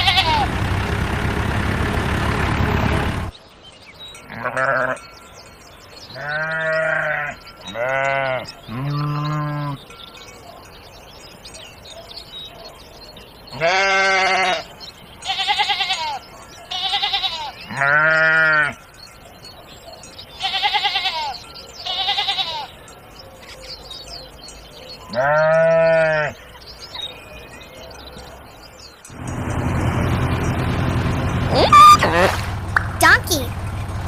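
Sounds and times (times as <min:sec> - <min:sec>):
sheep bleating: 0:00.0 - 0:00.5, 0:04.3 - 0:05.0, 0:06.1 - 0:09.8, 0:13.5 - 0:18.8, 0:20.4 - 0:22.7, 0:25.1 - 0:26.4.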